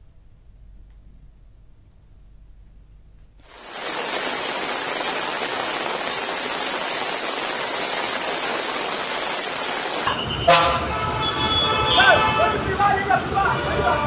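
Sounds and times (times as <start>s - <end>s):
heavy rain falling: 3.4s - 14.0s.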